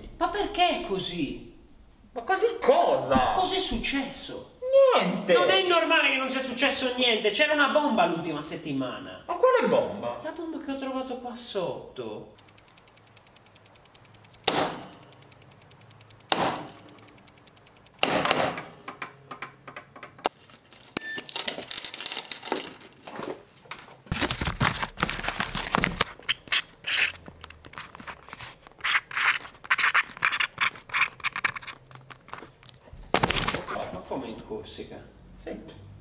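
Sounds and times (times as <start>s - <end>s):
rapid even ticking: 12.4s - 18.1s
sharp knocks: 14.4s - 15.0s, 16.3s - 16.8s
tools clattering on wooden table: 18.6s - 23.4s.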